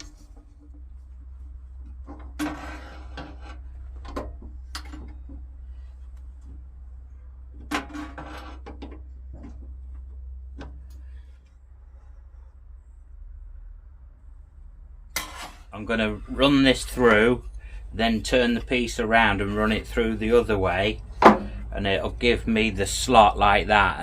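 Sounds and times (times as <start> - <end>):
steady low hum: 0.0 - 24.0
wooden knocks and clatter: 1.8 - 5.6, 21.1 - 21.7.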